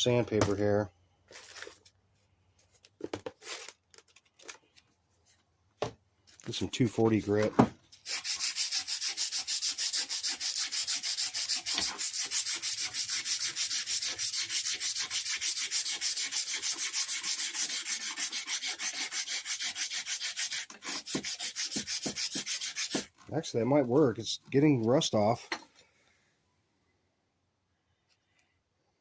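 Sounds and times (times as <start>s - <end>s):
sandpaper rubbing on metal: 8.0s - 25.3s.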